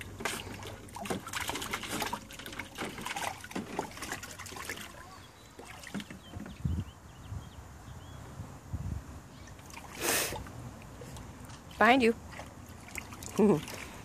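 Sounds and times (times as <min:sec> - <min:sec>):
water lapping: 0:00.0 - 0:06.6, 0:09.5 - 0:14.0
water splashing in a pool: 0:00.0 - 0:06.6, 0:09.5 - 0:14.0.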